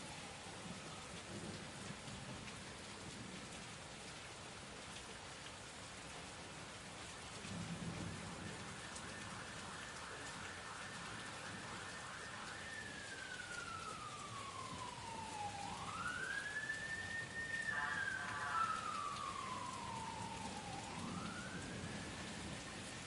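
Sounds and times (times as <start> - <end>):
steady rain: 0.0 - 23.0
siren wailing: 8.0 - 23.0.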